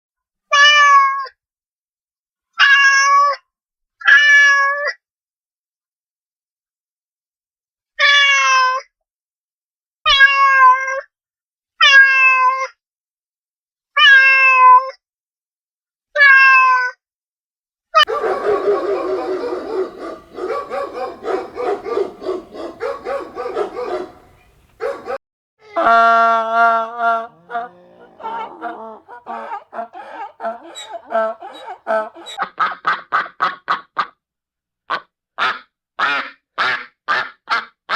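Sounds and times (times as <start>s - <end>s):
overlapping animal calls: 18.1s - 25.2s, 27.1s - 32.4s.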